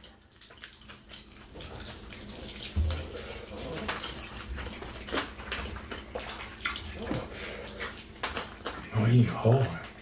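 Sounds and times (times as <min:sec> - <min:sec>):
wet chewing and lip-smacking: 0:00.0 - 0:08.9.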